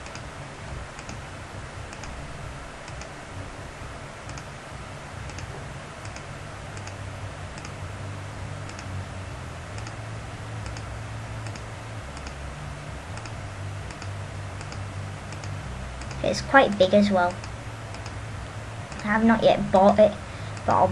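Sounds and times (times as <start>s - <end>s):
computer mouse clicking: 0.0s - 0.3s, 1.0s - 1.2s, 1.9s - 2.2s, 2.8s - 3.1s, 4.2s - 4.5s, 5.2s - 7.0s, 7.6s - 7.8s, 8.6s - 8.9s, 9.8s - 10.0s, 10.6s - 12.4s, 13.2s - 16.3s, 17.3s - 18.2s, 18.9s - 19.1s
steady low hum: 0.0s - 20.9s.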